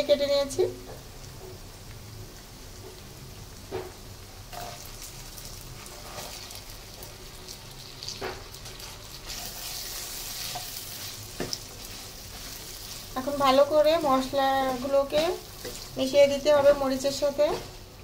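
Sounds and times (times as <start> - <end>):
chillies sizzling in hot oil: 0.0 - 18.0
spatula stirring in pan: 4.5 - 17.9.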